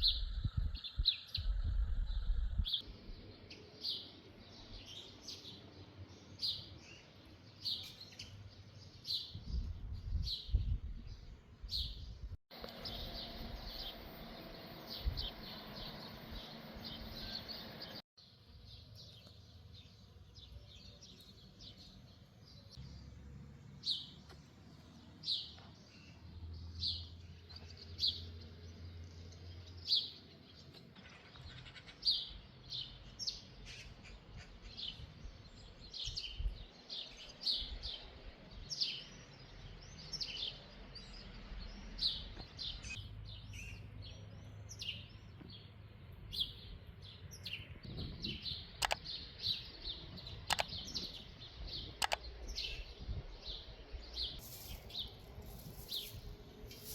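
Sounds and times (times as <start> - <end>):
faint low rumble: 0.0 - 3.4
small birds chirping: 0.0 - 23.2, 23.8 - 56.9.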